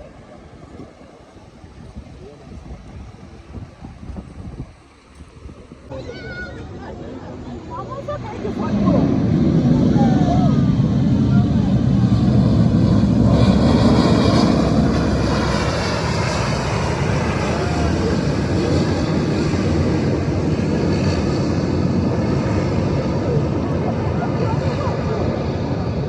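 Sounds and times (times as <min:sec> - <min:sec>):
jet engines running: 0:00.0 - 0:26.0.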